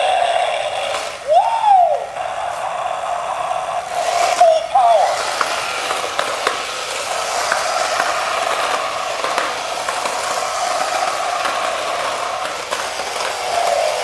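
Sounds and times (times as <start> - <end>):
voice calling out: 0.0 - 5.4
toy plane mechanical whir: 0.0 - 14.0.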